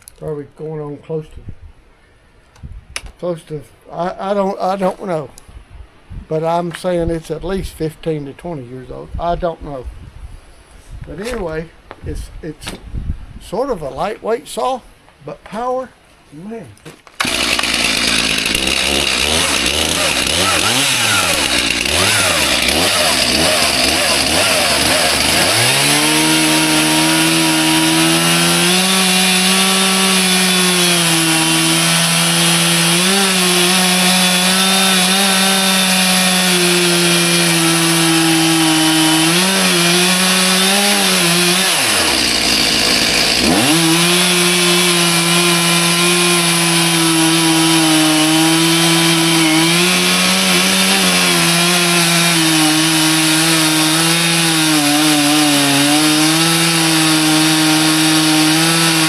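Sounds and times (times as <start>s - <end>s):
chainsaw cutting into log: 16.9s - 59.0s.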